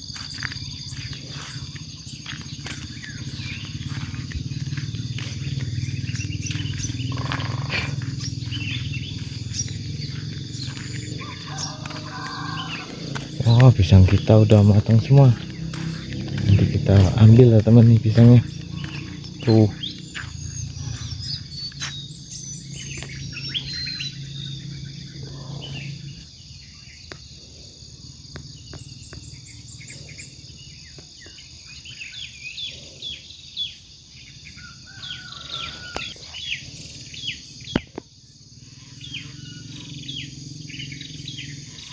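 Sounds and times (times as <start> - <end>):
birds chirping: 0.0 - 41.9
high insect buzz: 0.0 - 41.9
low hum: 0.8 - 26.3.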